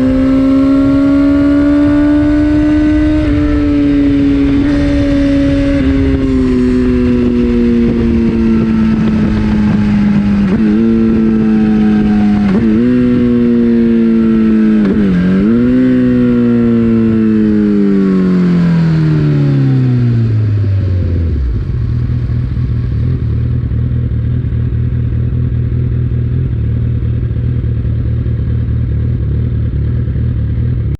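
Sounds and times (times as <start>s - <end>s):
motorcycle engine downshifting: 0.0s - 30.9s
motorcycle engine idling: 21.2s - 30.9s.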